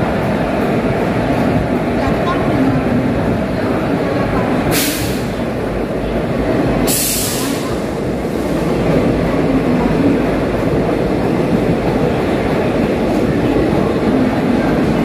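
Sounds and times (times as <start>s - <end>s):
train wheels rumbling: 0.0s - 15.0s
short hisses: 6.9s - 7.9s.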